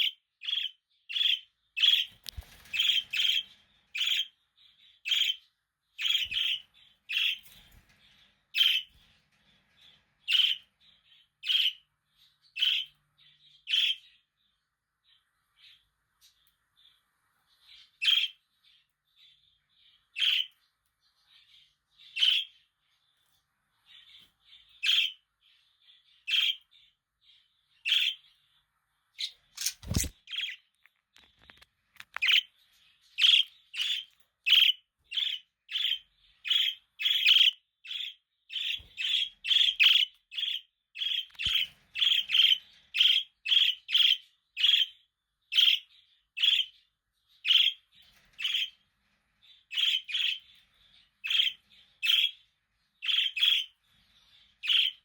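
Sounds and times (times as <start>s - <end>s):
budgerigars chirping: 0.0s - 4.4s, 5.0s - 7.7s, 8.5s - 8.9s, 9.8s - 11.9s, 12.5s - 13.0s, 13.6s - 14.2s, 17.8s - 18.4s, 20.1s - 20.6s, 22.0s - 22.6s, 24.0s - 25.3s, 26.2s - 26.7s, 27.8s - 28.3s, 32.2s - 48.8s, 49.5s - 55.0s.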